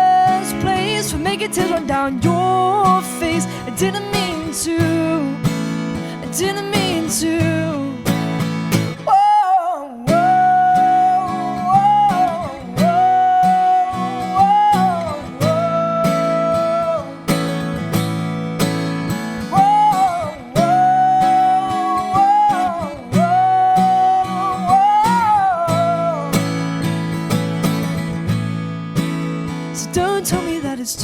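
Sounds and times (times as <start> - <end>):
woman singing wordless notes: 0.0 - 5.4, 6.2 - 8.1, 9.0 - 17.3, 19.5 - 26.4, 29.8 - 31.0
strummed acoustic guitar: 0.0 - 31.0.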